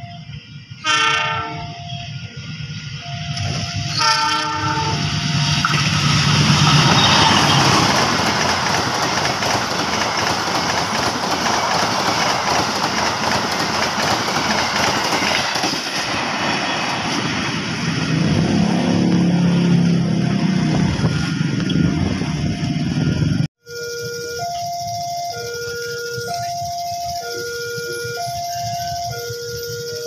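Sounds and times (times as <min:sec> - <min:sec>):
train passing at speed: 0:00.0 - 0:23.5
locomotive horn blast: 0:00.8 - 0:02.1, 0:03.3 - 0:05.7, 0:06.5 - 0:08.0.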